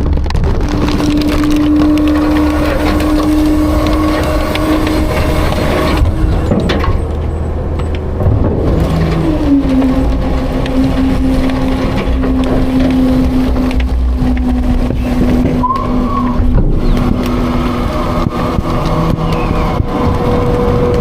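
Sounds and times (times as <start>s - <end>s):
garbage truck running: 0.0s - 21.0s
knocks and rattles: 0.0s - 21.0s
steady machine whine: 0.0s - 21.0s.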